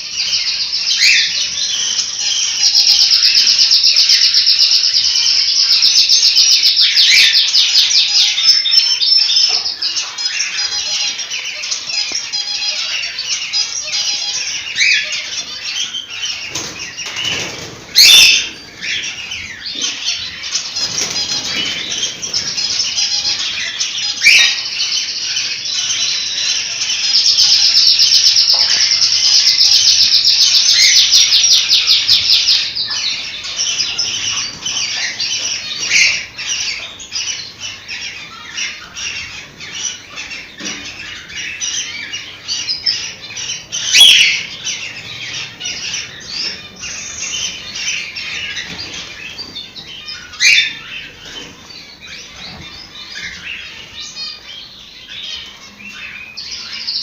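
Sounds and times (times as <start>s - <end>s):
cockatiels chirping and whistling: 0.2s - 57.0s.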